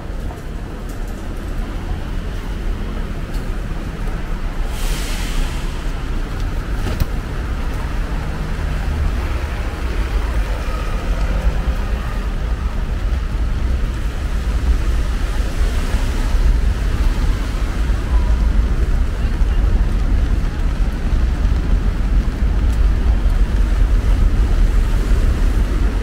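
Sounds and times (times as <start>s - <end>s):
car traffic on wet road: 0.0s - 26.0s
heavy rain hissing: 4.2s - 6.8s.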